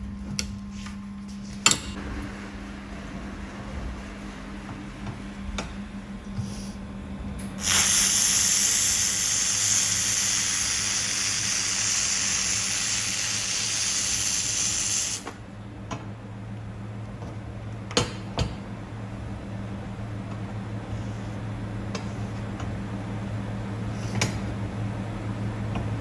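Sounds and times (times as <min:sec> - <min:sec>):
low machine hum: 0:00.0 - 0:26.0
laser welder hissing: 0:07.6 - 0:15.3.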